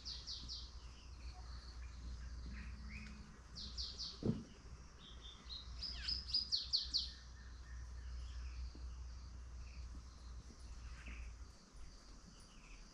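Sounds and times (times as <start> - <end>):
birds chirping: 0.0 - 12.9
steady low hum: 0.0 - 12.9.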